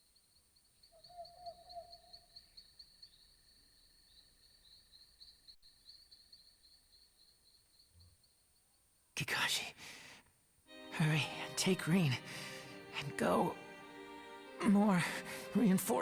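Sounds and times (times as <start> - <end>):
insect chirping: 0.0 - 10.6.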